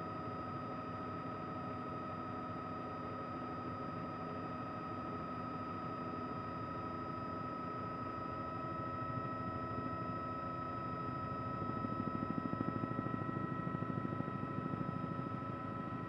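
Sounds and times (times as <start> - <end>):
helicopter turbine whine: 0.0 - 16.0.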